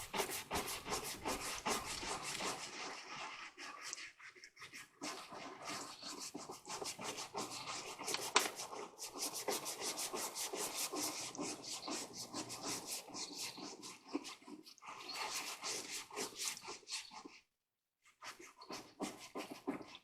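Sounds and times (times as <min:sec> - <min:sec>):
scrub brush scrubbing wood: 0:00.0 - 0:13.4.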